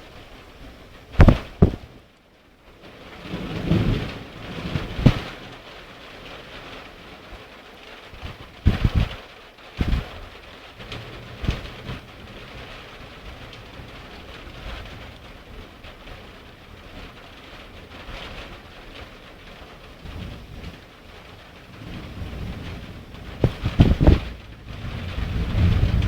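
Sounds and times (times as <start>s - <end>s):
heavy rain: 0.0s - 26.0s
sharp thunder cracks: 1.2s - 1.9s, 22.3s - 26.0s.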